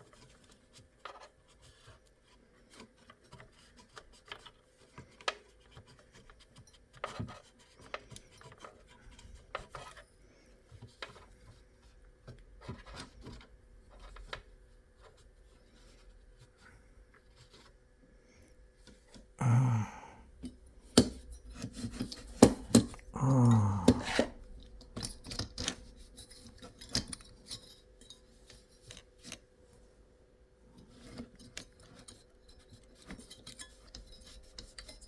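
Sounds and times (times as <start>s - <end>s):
handling clicks and taps: 21.9s - 23.0s.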